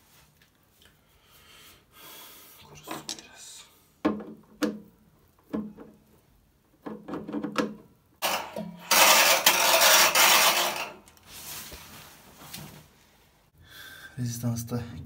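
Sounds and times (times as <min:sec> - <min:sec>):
scraping rattle in drum: 0:08.2 - 0:11.0.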